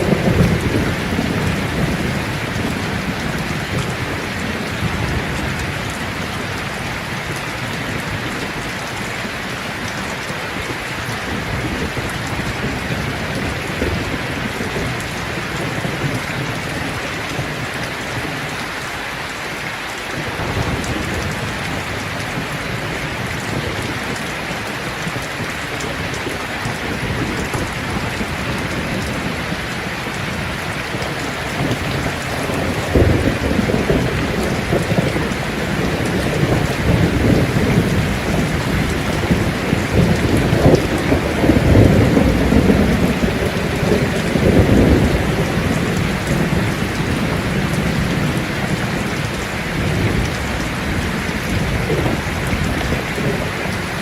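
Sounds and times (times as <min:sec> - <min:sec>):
low rolling thunder: 0:00.0 - 0:09.1, 0:20.1 - 0:54.0
dense rain pattering: 0:00.0 - 0:54.0.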